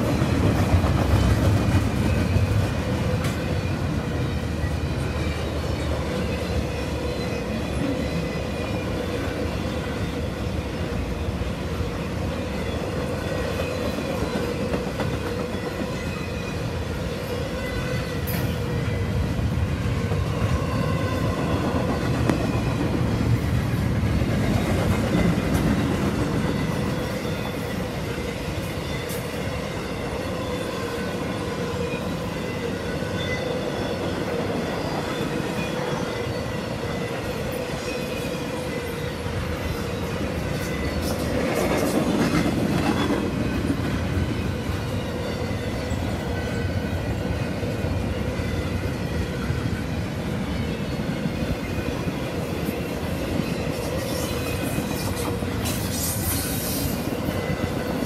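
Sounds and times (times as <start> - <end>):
steel wheels rumbling on rail: 0.0 - 58.0
wheels squealing: 52.6 - 58.0.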